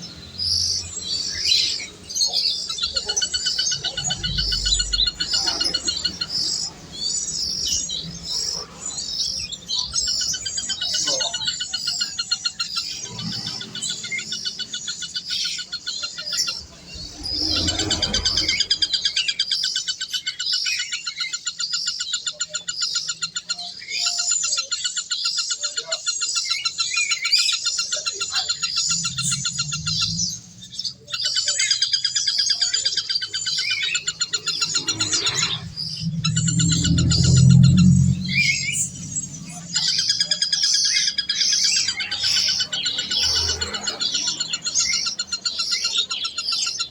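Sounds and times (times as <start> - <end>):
birds chirping and chattering: 0.0 - 46.9
low rumbles: 16.4 - 19.5, 28.2 - 31.5, 33.2 - 42.1.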